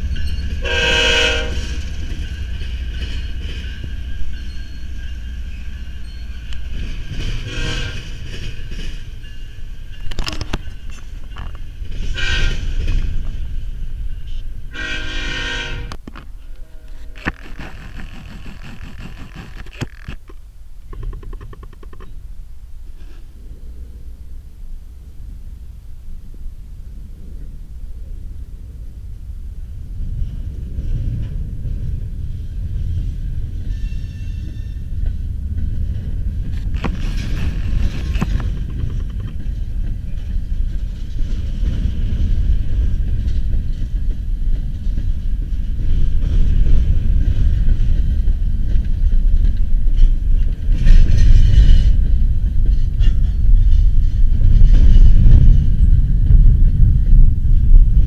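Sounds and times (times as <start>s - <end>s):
train wheels rumbling on rail: 0.0s - 58.0s
sharp clanks: 16.9s - 22.2s, 33.7s - 42.3s.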